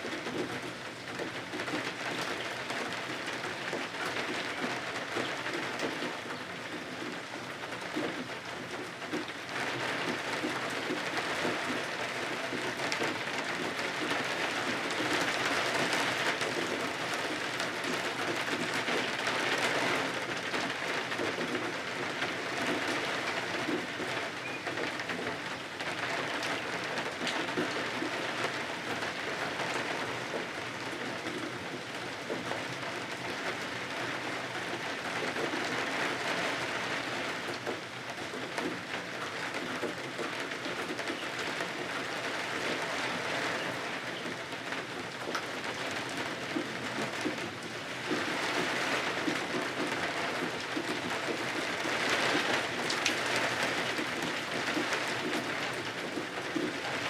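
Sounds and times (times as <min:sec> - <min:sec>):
rain against windows: 0:00.0 - 0:57.0.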